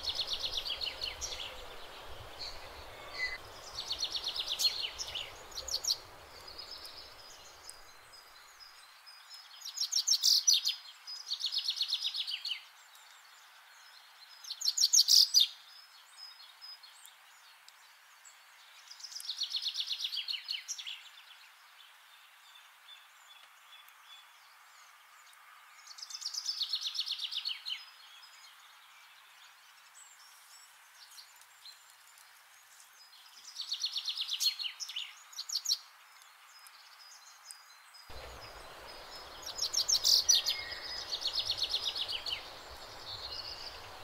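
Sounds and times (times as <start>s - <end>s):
low background rumble: 38.1s - 44.0s.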